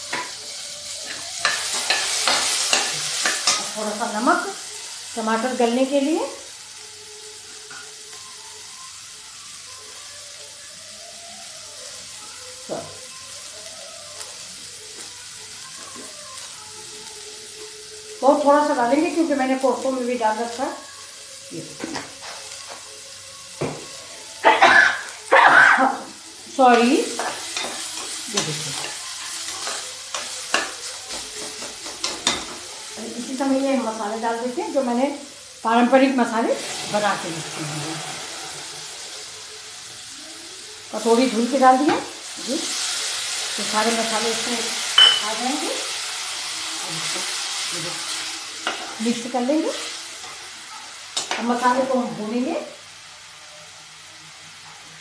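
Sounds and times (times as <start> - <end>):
food sizzling in oil: 0.0 - 55.0
spoon clinking and scraping pot: 1.0 - 3.8, 27.1 - 32.6, 44.9 - 45.3.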